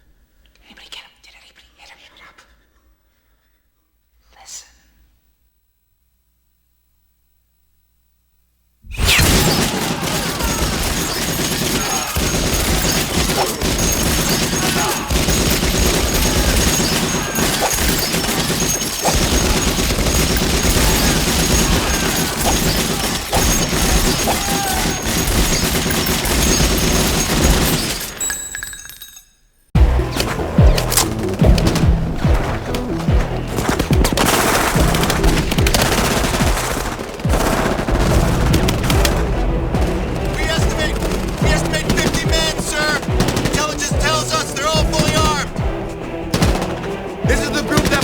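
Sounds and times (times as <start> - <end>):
continuous gunfire: 8.9 - 28.4, 29.8 - 48.0.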